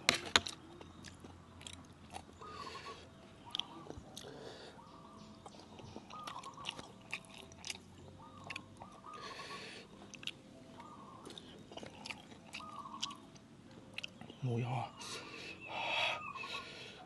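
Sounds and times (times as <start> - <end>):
person chewing crunchy food: 0.1 - 2.8, 3.5 - 4.5, 5.4 - 14.4.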